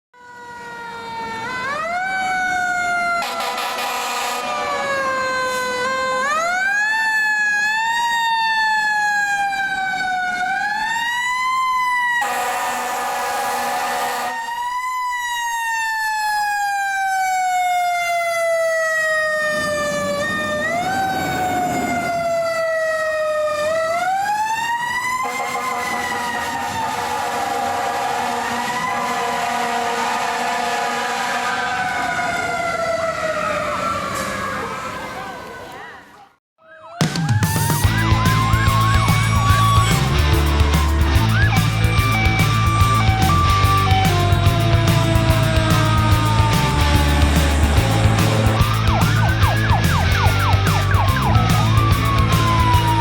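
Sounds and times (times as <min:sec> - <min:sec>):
fire engine siren wailing: 0:00.1 - 0:36.2, 0:36.8 - 0:53.0
loud harsh horn blast: 0:03.2 - 0:04.7, 0:12.2 - 0:14.4, 0:25.2 - 0:32.0.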